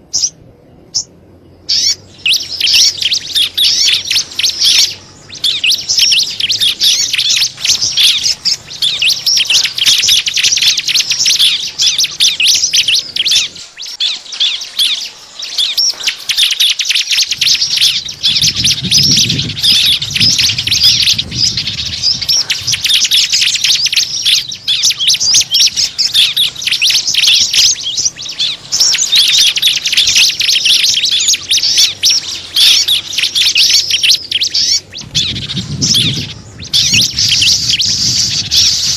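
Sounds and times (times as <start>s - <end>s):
small birds chirping: 0.0s - 38.9s
low rumble: 17.4s - 26.6s, 34.6s - 38.9s.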